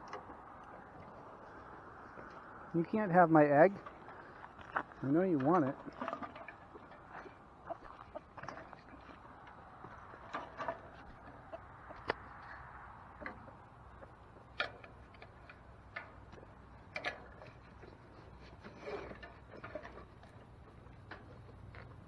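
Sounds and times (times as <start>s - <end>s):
chickens clucking faintly: 6.6s - 14.5s.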